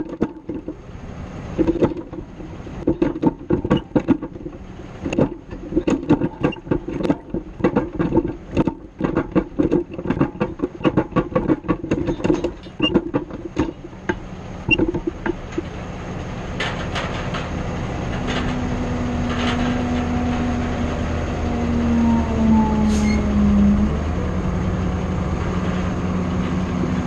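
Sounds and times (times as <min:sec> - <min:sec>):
grapple metal rattling: 0:00.0 - 0:15.9
loader engine running: 0:00.0 - 0:27.0.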